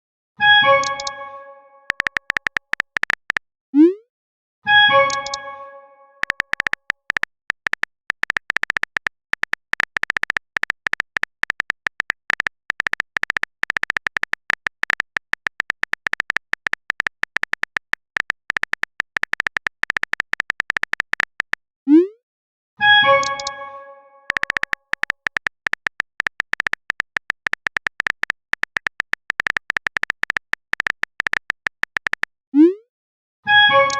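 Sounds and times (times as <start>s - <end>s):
phone keyboard typing clicks: 0.7s - 1.2s, 1.9s - 3.4s, 4.9s - 5.5s, 6.2s - 21.6s, 23.0s - 32.3s
message notification chime: 23.1s - 24.3s.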